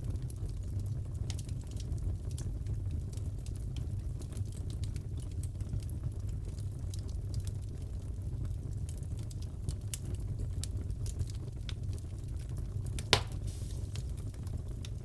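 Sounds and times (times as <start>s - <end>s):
wood fire crackling: 0.0s - 15.0s
loud pop of fire: 13.0s - 14.4s.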